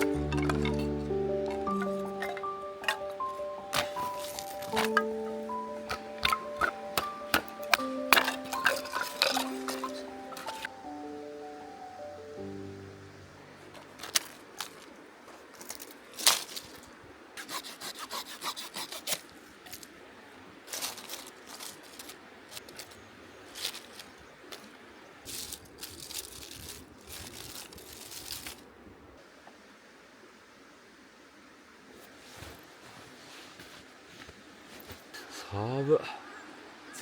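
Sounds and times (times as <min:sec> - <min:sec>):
scraping strokes on wood: 0:00.0 - 0:10.7, 0:17.4 - 0:19.3
wood cracking: 0:00.0 - 0:10.8, 0:13.7 - 0:16.8.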